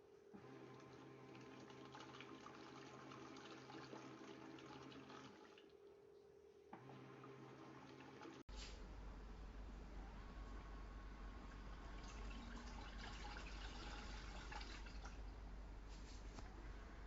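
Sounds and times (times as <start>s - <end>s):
washing machine motor humming: 0.3s - 5.8s, 6.7s - 17.0s
water swishing in tub: 11.8s - 15.2s.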